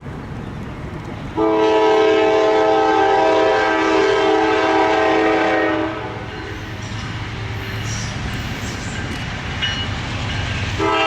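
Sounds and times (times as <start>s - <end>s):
passing train rumble: 0.0s - 11.0s
locomotive air horn blast: 1.4s - 6.4s, 10.8s - 11.0s.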